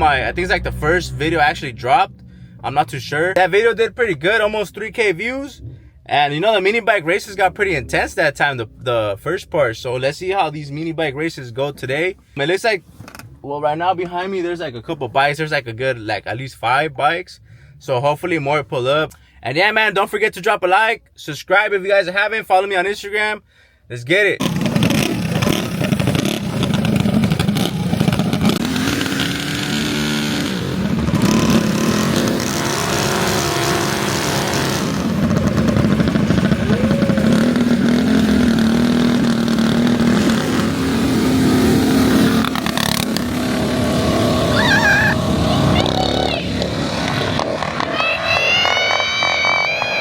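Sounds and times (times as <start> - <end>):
mini bike engines revving: 24.4 - 50.0.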